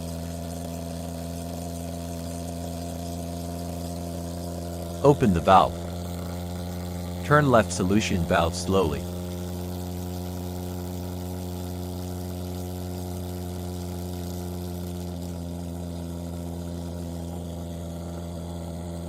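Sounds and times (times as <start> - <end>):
fogging machine buzzing drone: 0.0 - 19.0.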